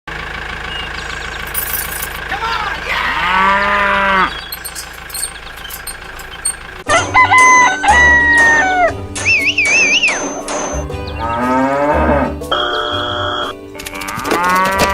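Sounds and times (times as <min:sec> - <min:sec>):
cow mooing: 0:02.6 - 0:06.6, 0:09.6 - 0:13.5, 0:14.1 - 0:14.9.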